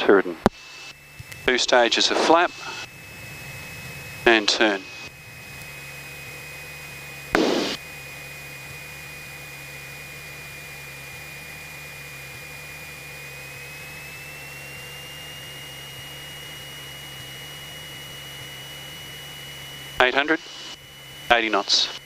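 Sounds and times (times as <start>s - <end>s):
steady high whine: 0.0s - 22.0s
aircraft engine droning: 0.1s - 22.0s
loud burst of noise: 1.9s - 7.9s.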